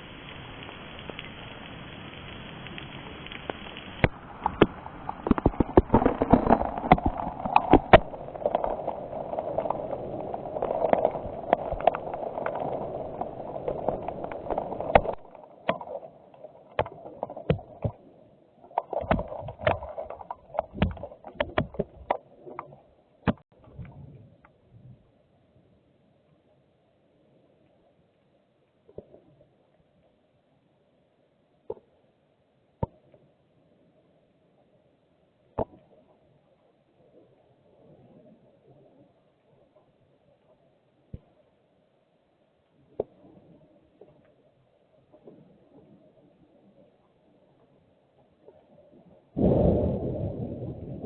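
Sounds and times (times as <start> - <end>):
rain hissing: 0.0 - 17.9.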